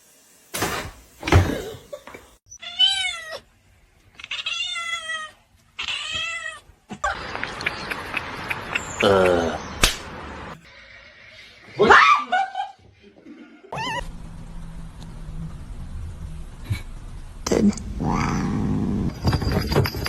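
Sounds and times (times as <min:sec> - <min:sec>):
cat meowing: 0:02.5 - 0:03.4, 0:04.2 - 0:06.6.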